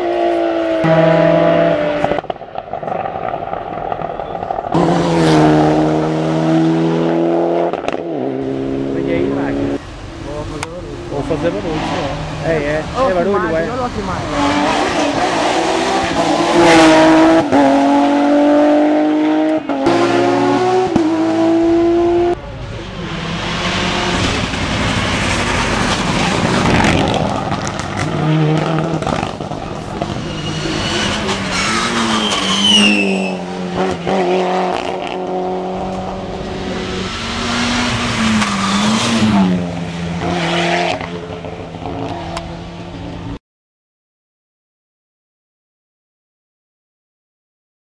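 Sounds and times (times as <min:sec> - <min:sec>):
tyre squeal: 0:30.1 - 0:33.5.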